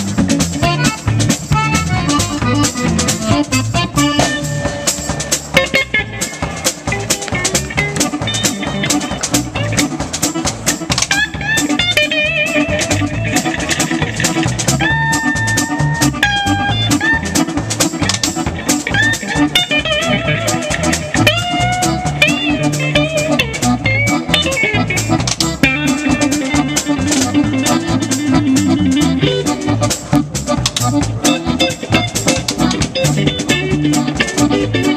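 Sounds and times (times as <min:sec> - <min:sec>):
lead melody with bends: 0:00.0 - 0:34.9
steady drum beat: 0:00.0 - 0:34.9.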